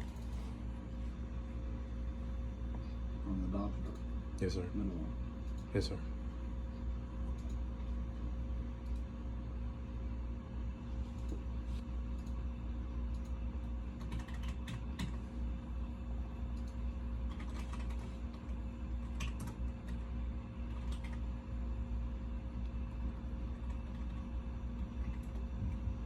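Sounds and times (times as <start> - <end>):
steady low hum: 0.0 - 26.0
keyboard typing: 14.0 - 15.2, 16.6 - 20.0, 20.7 - 21.3.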